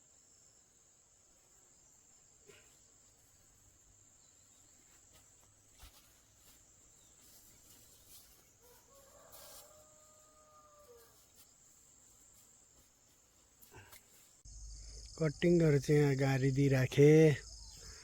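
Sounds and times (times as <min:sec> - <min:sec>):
high-pitched insect trill: 0:14.1 - 0:18.0.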